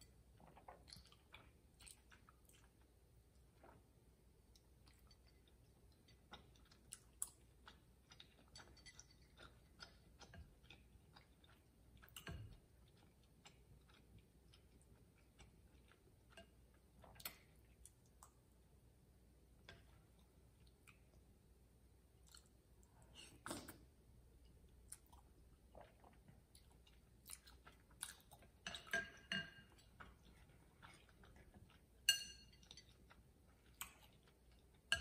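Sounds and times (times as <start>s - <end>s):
chewing and wet mouth sounds: 0.0s - 18.6s, 19.6s - 21.3s, 22.1s - 35.0s.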